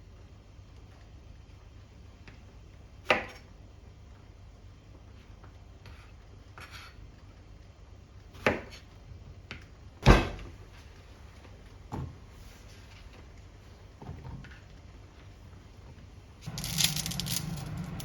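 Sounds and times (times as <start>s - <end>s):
objects knocking and clunking: 16.5s - 18.0s.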